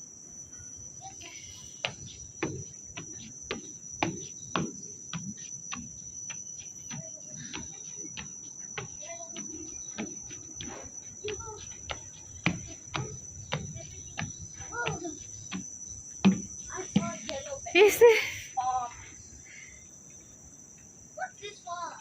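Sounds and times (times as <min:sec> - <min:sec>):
insects droning: 0:00.0 - 0:22.0
knocks and thumps: 0:01.8 - 0:17.4.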